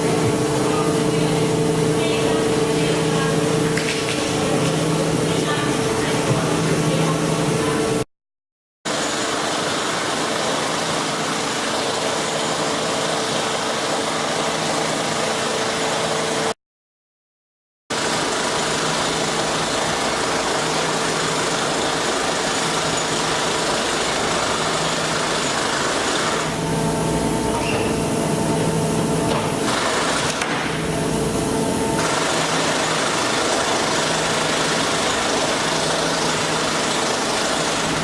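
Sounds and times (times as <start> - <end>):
machinery humming: 0.0 - 8.0, 18.2 - 38.0.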